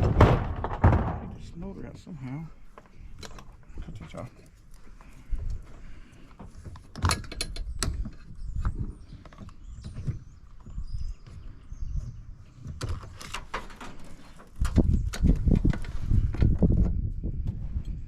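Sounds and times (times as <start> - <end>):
metal clatter and rumble: 0.0 - 1.9.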